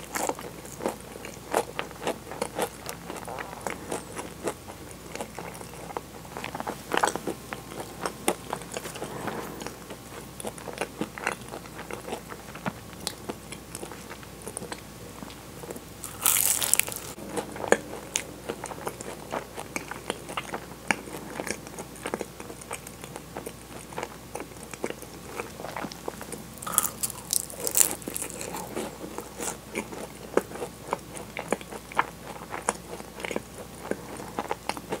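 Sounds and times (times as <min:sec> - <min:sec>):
crunching pastry bites and chewing: 0:11.8 - 0:17.5, 0:22.1 - 0:35.0.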